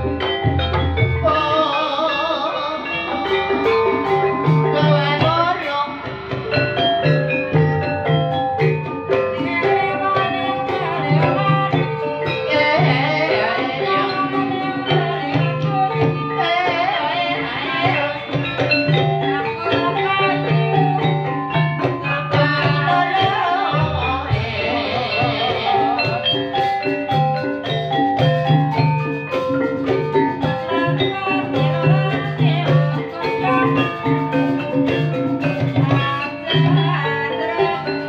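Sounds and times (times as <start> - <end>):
struck keyed instruments: 0.0 - 38.0
wavering melody line: 0.0 - 38.0.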